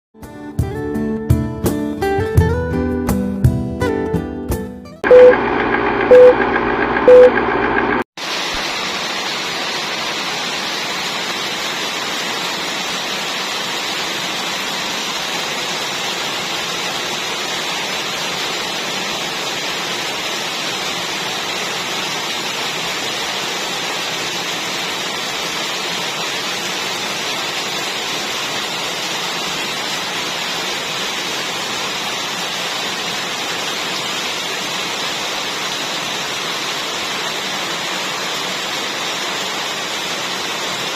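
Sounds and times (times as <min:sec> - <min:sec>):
guitar intro music: 0:00.2 - 0:05.3
beeps: 0:05.1 - 0:05.4, 0:06.1 - 0:06.4, 0:07.0 - 0:07.4
heavy rain falling: 0:08.2 - 0:40.9.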